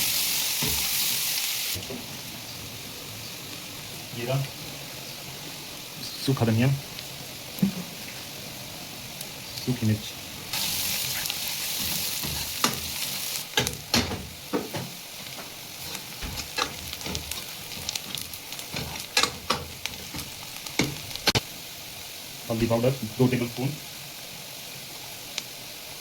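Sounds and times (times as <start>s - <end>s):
onions and spices sizzling in oil: 0.0s - 26.0s
spoon scraping a pan: 10.5s - 13.7s, 15.8s - 21.4s.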